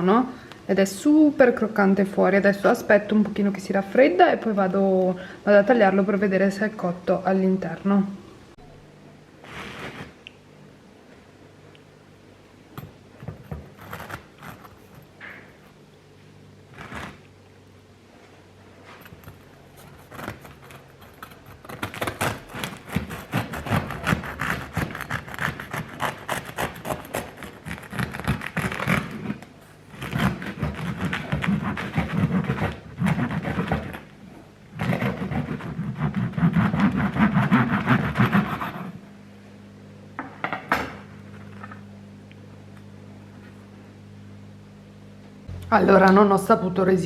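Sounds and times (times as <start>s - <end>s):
faint steady hum: 0.0s - 47.0s
knife sawing through crusty bread: 16.7s - 17.2s, 19.7s - 34.1s, 34.8s - 39.0s.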